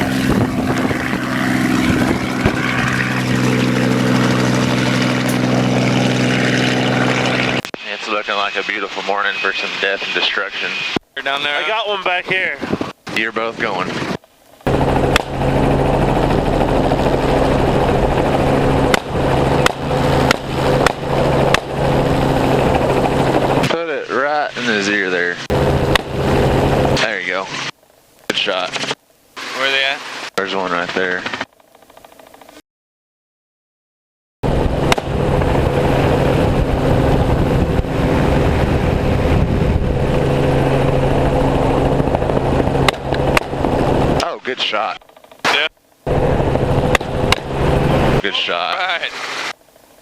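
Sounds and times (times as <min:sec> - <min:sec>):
helicopter engine and rotors: 0:00.0 - 0:32.6, 0:34.4 - 0:50.0
sharp crack: 0:15.1 - 0:15.4, 0:18.9 - 0:21.8, 0:25.9 - 0:26.2, 0:34.9 - 0:35.2, 0:42.8 - 0:43.7, 0:46.9 - 0:47.6.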